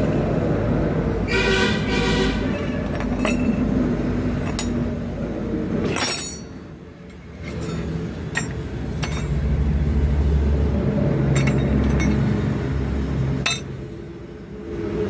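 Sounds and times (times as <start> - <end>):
steel pieces clinking: 2.6 - 3.7, 4.4 - 4.8, 5.8 - 6.6, 7.4 - 9.4, 11.3 - 12.3, 13.4 - 13.7.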